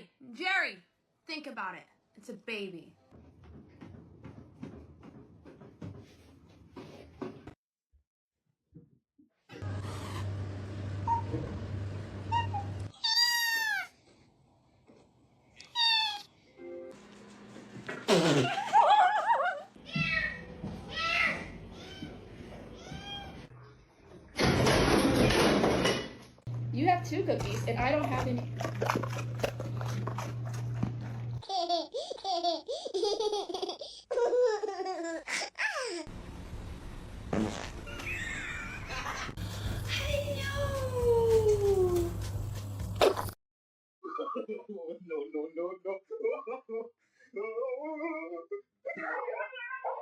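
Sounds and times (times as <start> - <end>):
cat meowing: 15.6 - 16.3
baby laughing: 31.4 - 36.1.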